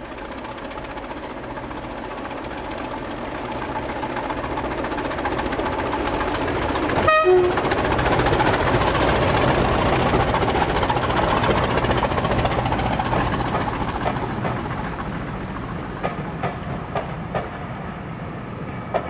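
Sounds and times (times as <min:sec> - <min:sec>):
diesel locomotive running: 0:00.0 - 0:19.0
locomotive horn toot: 0:07.0 - 0:07.6.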